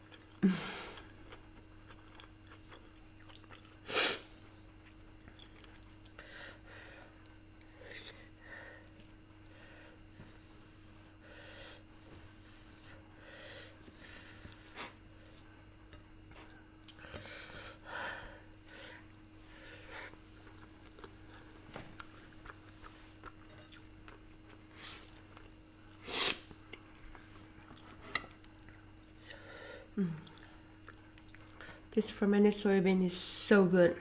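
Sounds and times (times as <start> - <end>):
chewing and wet mouth sounds: 0.0 - 3.8, 4.8 - 6.2, 20.4 - 29.4, 30.1 - 31.7.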